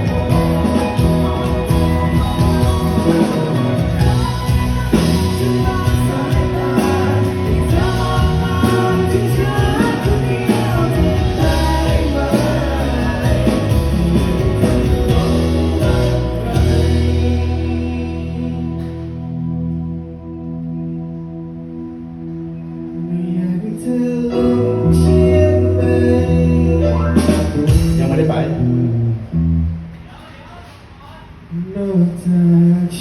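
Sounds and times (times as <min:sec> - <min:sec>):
person singing: 0:00.0 - 0:19.5, 0:22.8 - 0:27.9
live band playing pop-rock: 0:00.0 - 0:33.0.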